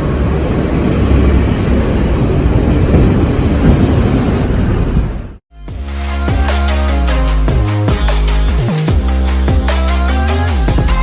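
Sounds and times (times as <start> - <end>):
train running: 0.0 - 5.4.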